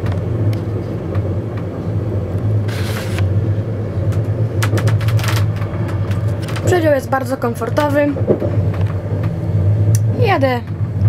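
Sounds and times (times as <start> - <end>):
train running low rumble: 0.0 - 11.0
brief hiss: 2.7 - 3.2.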